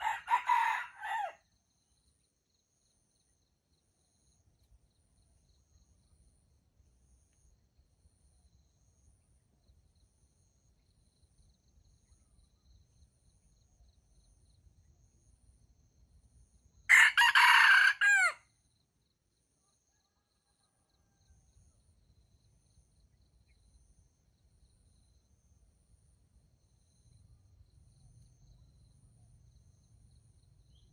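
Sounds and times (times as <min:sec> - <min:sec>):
rooster crowing: 0:00.0 - 0:01.4, 0:16.9 - 0:18.4
faint insect chirping: 0:00.0 - 0:30.9.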